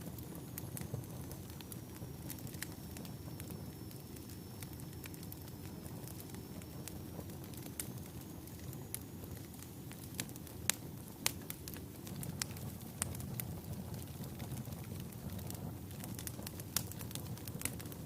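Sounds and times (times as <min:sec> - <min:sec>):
fire burning in fireplace: 0:00.0 - 0:18.0
fire crackles and pops: 0:00.0 - 0:18.0.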